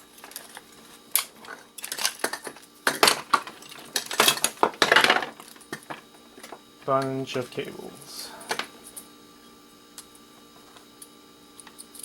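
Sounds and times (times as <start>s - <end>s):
metal scrap parts clinking: 0.2s - 7.1s.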